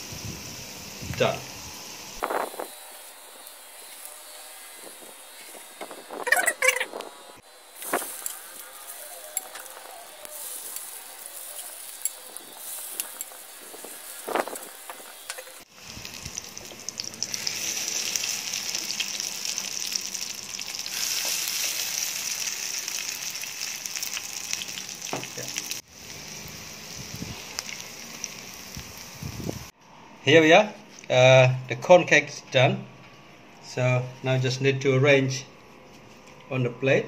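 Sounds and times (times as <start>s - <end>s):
fritters sizzling in hot oil: 7.6s - 29.7s.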